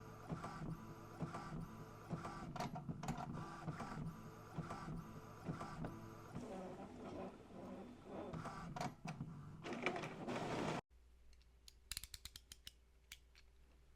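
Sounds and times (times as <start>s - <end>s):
printer carriage motor whirring: 0.0s - 10.8s.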